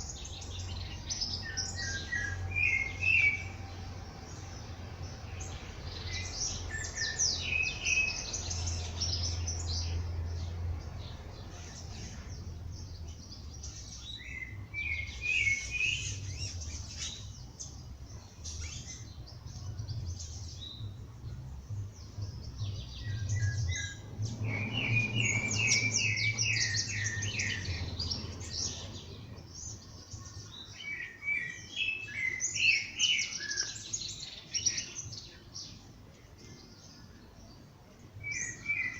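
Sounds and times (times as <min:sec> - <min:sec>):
songbirds chirping and trilling: 0:00.0 - 0:38.9
steady low hum: 0:16.0 - 0:30.4.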